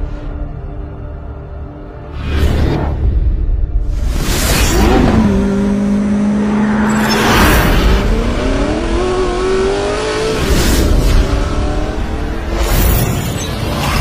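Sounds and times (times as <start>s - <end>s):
sports car engine accelerating: 4.9s - 12.6s.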